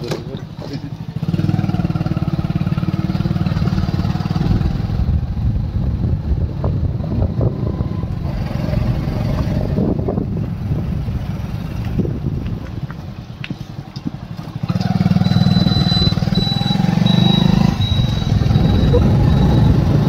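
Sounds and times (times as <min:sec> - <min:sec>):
wind: 0:00.0 - 0:20.0
small motorcycle engine running: 0:14.3 - 0:20.0.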